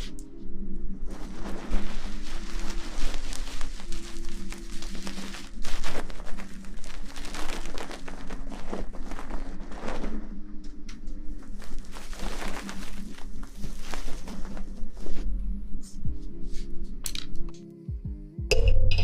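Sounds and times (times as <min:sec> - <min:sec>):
close rustling and crackling: 0:01.1 - 0:15.3
low held tones: 0:15.2 - 0:19.0.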